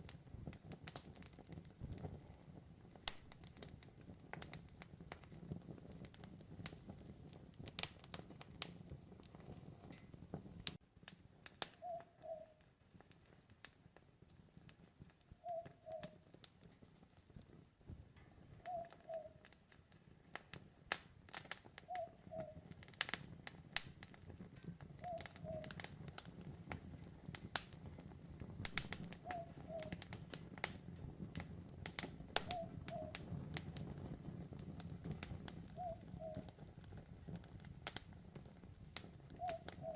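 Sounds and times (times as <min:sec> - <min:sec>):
campfire crackling: 0:00.0 - 0:39.9
owl two-note hoot: 0:11.8 - 0:12.5, 0:15.4 - 0:16.1, 0:18.7 - 0:19.4, 0:29.2 - 0:29.9.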